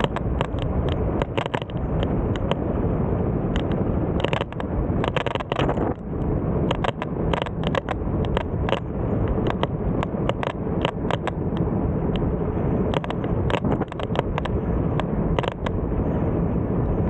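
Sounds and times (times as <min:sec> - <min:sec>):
short clicks and rattles: 0:00.0 - 0:02.6, 0:03.5 - 0:06.0, 0:06.7 - 0:12.2
wind rushing over microphone: 0:00.0 - 0:17.0.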